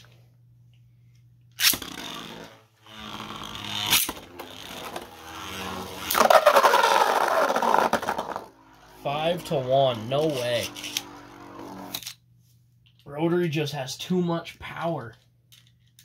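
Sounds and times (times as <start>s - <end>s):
spinning tops launched: 1.6s - 2.6s, 3.2s - 8.6s
spinning tops scraping: 1.6s - 12.2s.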